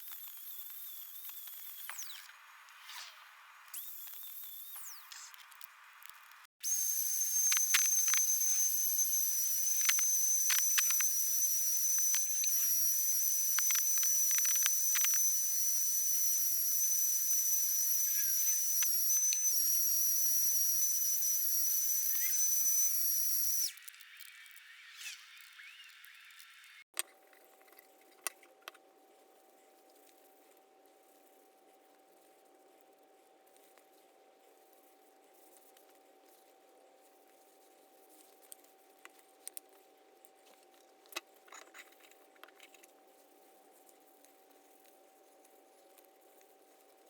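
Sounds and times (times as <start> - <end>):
clicks: 3.8 - 16.1
high-speed motor whining: 6.6 - 23.7.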